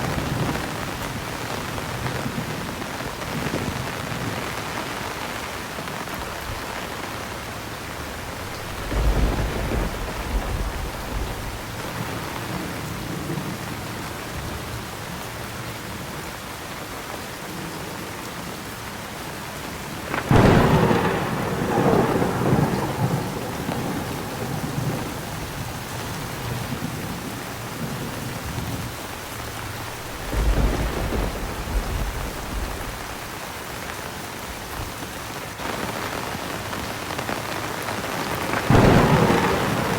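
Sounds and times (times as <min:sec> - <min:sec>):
heavy rain: 0:00.0 - 0:39.9
thunder rumbling: 0:08.0 - 0:13.4, 0:20.0 - 0:33.6, 0:37.3 - 0:39.9
sharp thunderclap: 0:08.3 - 0:11.9, 0:20.1 - 0:27.2, 0:29.5 - 0:33.4, 0:38.3 - 0:39.9.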